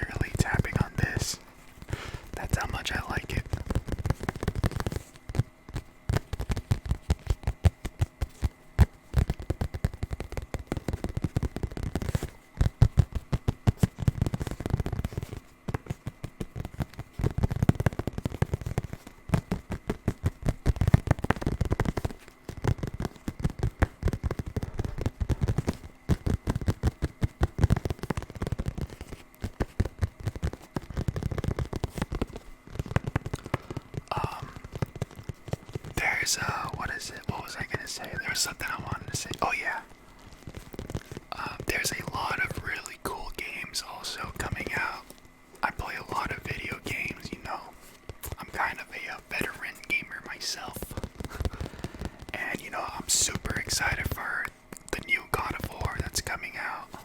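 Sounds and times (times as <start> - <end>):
rapid tapping on hard object: 0.0 - 57.0.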